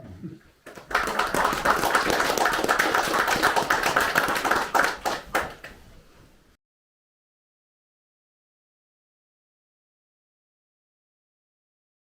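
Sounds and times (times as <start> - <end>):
audience applauding: 0.6 - 5.8.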